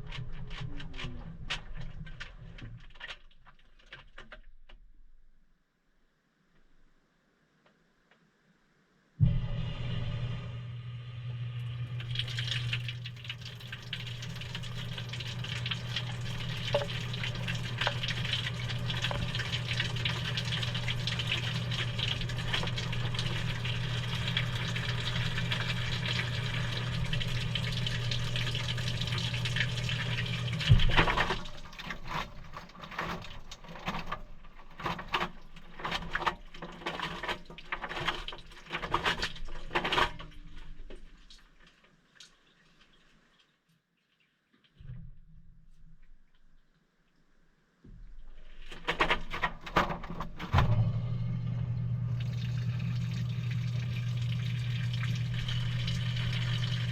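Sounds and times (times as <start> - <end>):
washing machine hum: 0.0 - 4.4, 9.2 - 41.8, 47.9 - 56.9
water rushing into washing machine: 0.0 - 4.7, 9.2 - 43.5, 48.0 - 56.9
water trickling and dripping: 11.6 - 38.6, 40.8 - 44.4, 52.0 - 56.9.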